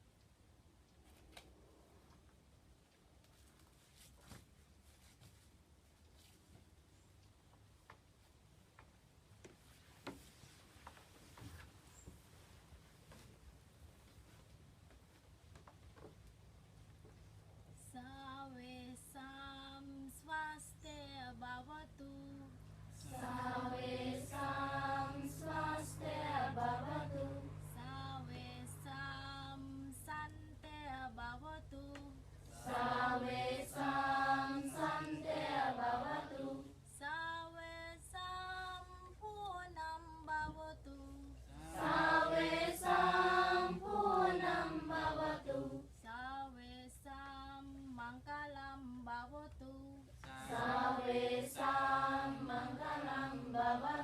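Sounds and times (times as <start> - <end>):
women singing a slow chant: 18.0 - 38.8, 40.4 - 46.7, 50.2 - 54.0.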